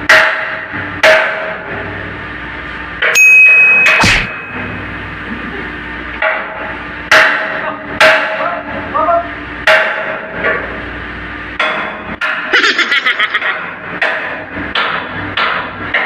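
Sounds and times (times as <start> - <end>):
hammer striking metal with ringing: 3.0 - 4.9, 6.2 - 8.4.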